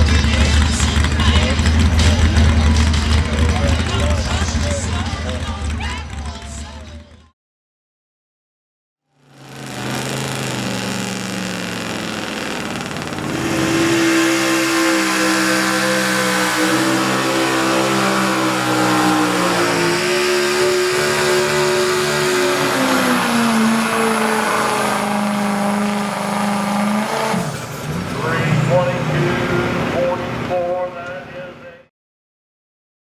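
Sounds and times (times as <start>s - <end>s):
pickup truck engine under load: 9.2s - 28.4s.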